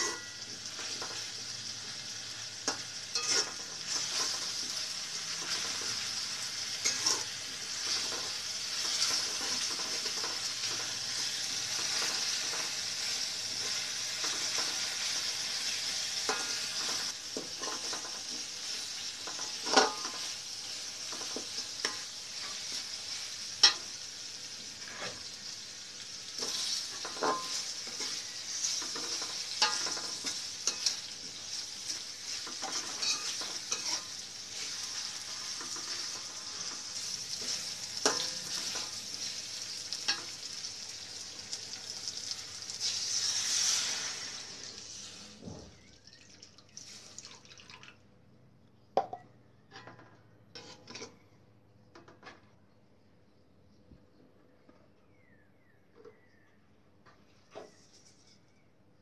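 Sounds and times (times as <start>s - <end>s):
paste sizzling in oil: 0.0s - 45.3s
spatula scraping pan: 2.7s - 24.0s, 24.8s - 25.4s, 26.3s - 40.4s, 42.8s - 44.5s, 50.5s - 51.2s
spatula tapping pan: 26.4s - 31.1s, 34.7s - 39.0s.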